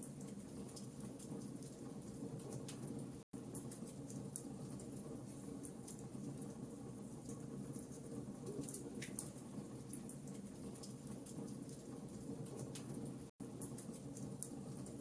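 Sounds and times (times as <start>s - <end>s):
wood fire pops and snaps: 7.3s - 14.9s.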